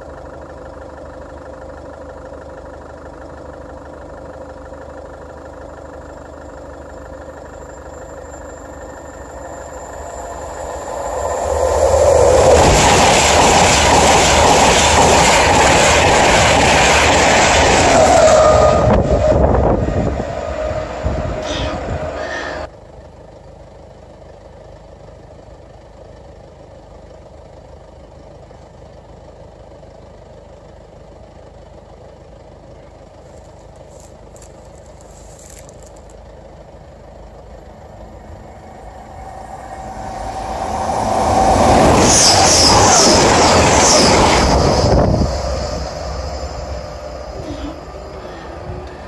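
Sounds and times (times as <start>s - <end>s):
train passing close by: 6.4s - 22.7s, 36.6s - 49.0s.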